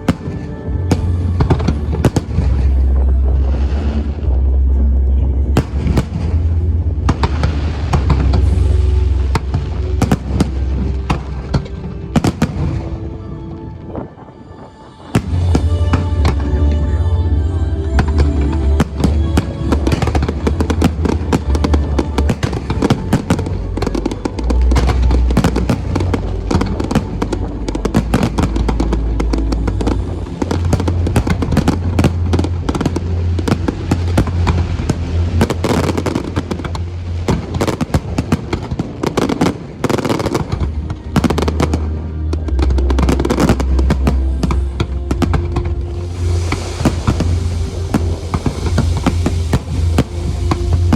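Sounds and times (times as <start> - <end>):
fireworks bangs and crackling: 0.0 - 4.4, 5.5 - 13.2, 13.8 - 16.5, 18.7 - 50.9
heavy low booms: 0.0 - 13.3, 15.1 - 50.9
music playing: 0.0 - 50.9.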